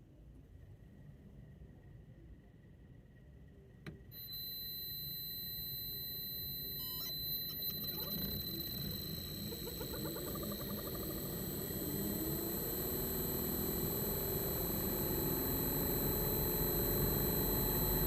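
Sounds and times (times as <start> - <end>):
air conditioner high-pitched whine: 0.0 - 18.0
compressor hum rising in pitch: 4.2 - 18.0.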